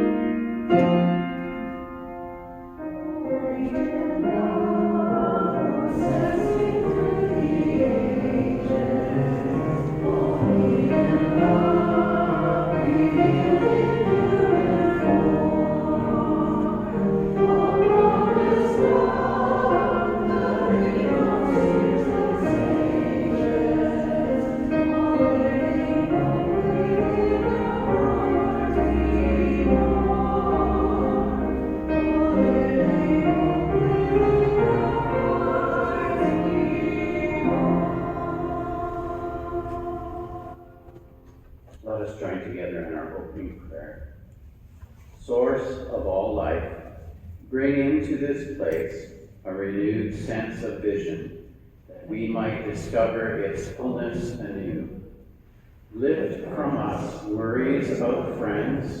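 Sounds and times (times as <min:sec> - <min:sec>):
piano accompaniment: 0:00.0 - 0:44.7, 0:45.4 - 0:59.0
choir singing a hymn: 0:02.7 - 0:41.3, 0:52.0 - 0:55.0, 0:55.9 - 0:59.0.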